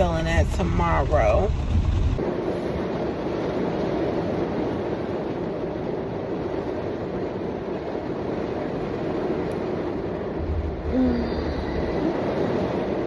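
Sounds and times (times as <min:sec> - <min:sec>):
vehicle interior rumble: 0:00.0 - 0:02.3, 0:06.8 - 0:13.0.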